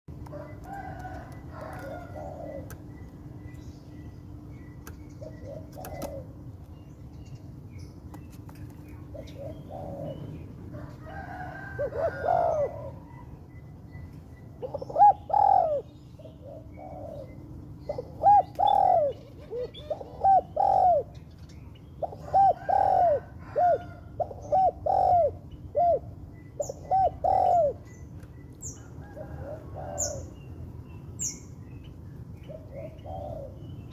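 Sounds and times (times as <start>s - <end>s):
dove cooing: 0.2s - 3.0s, 5.2s - 6.4s, 9.0s - 13.3s, 14.6s - 21.2s, 22.0s - 28.0s, 28.8s - 30.4s, 32.5s - 33.9s.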